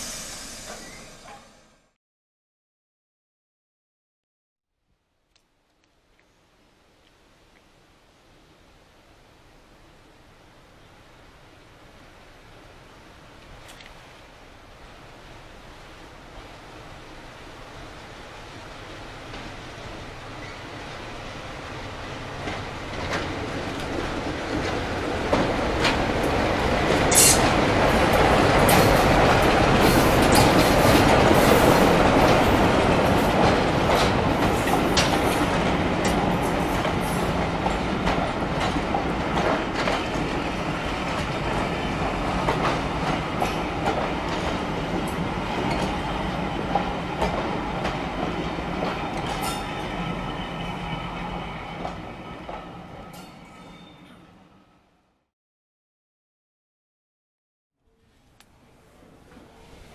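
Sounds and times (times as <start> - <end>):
diesel locomotive engine hum: 0.0 - 1.9.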